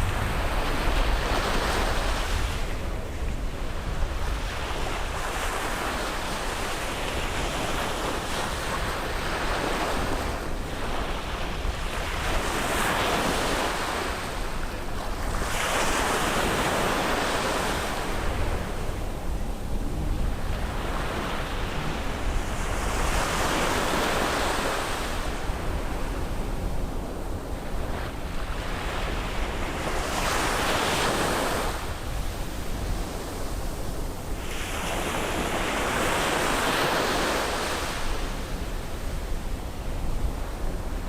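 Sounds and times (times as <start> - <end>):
sea waves breaking on beach: 0.0 - 41.0
steady low rumble: 18.0 - 23.9.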